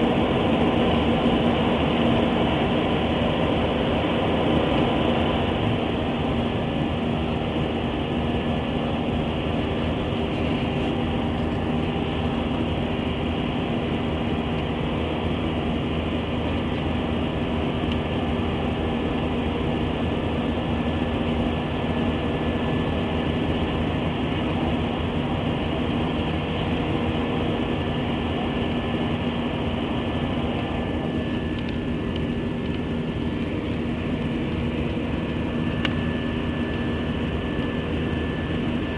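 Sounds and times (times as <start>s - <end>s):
jet engines droning in cabin: 0.0s - 38.9s.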